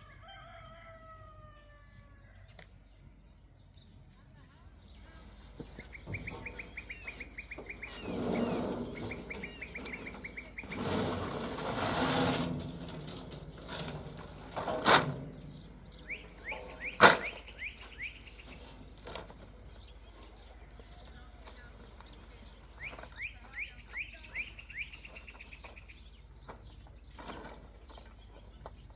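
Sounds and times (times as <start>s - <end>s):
small bird chirping trills: 4.7s - 10.8s, 15.5s - 28.9s.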